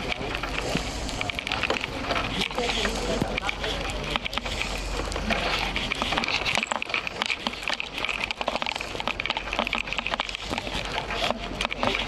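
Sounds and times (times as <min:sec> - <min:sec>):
steady hiss: 0:00.0 - 0:06.2
bicycle tyres crunching snow: 0:00.0 - 0:12.0.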